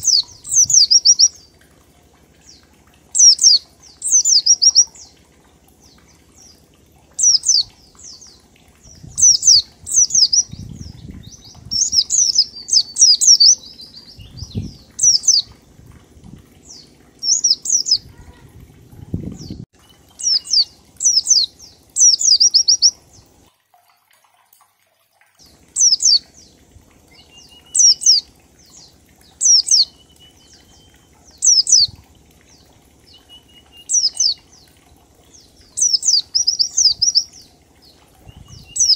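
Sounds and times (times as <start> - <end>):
bird singing rapid high notes: 0.0 - 1.5, 3.2 - 5.1, 7.2 - 15.6, 16.7 - 18.4, 20.2 - 23.0, 25.8 - 26.2, 27.1 - 32.0, 33.1 - 34.6, 35.4 - 37.4.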